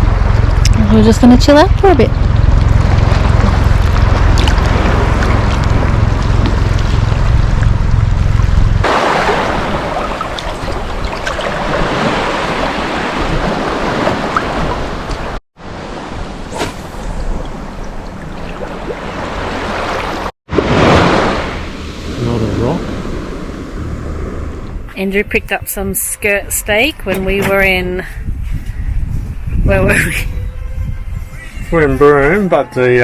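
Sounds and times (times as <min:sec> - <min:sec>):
wind rumble on microphone: 0:00.0 - 0:15.4, 0:16.0 - 0:33.0
sea waves washing on sand: 0:08.8 - 0:23.5.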